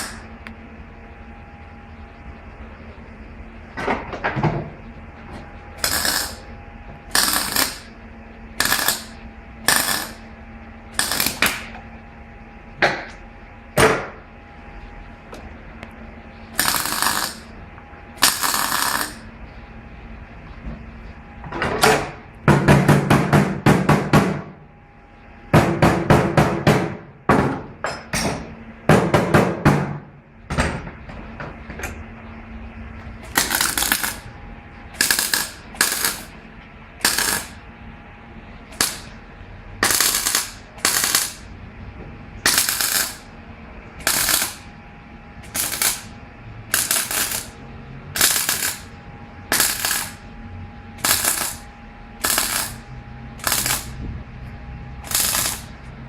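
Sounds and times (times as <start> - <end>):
power tool rattling impacts: 55.1 - 55.7.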